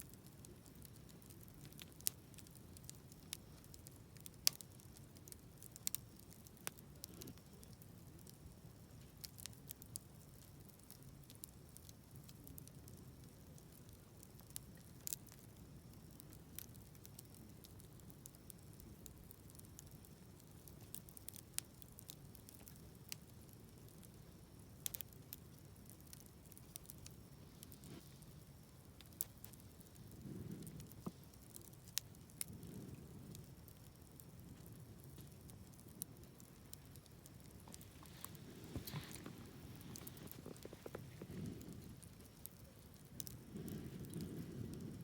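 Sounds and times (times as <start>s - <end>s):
campfire crackling and popping: 0.0s - 45.0s
low steady rumble: 26.4s - 45.0s.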